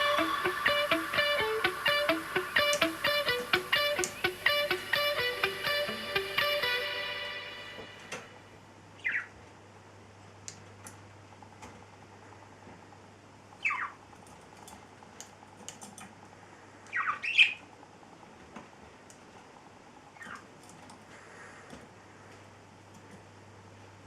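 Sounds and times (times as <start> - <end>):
parrot squawking: 13.6 - 14.0.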